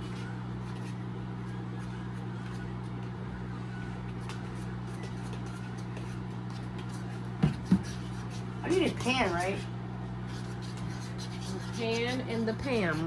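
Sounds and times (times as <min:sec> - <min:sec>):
steady low hum: 0:00.0 - 0:13.0
spoon stirring batter in bowl: 0:04.1 - 0:09.7, 0:10.3 - 0:13.0.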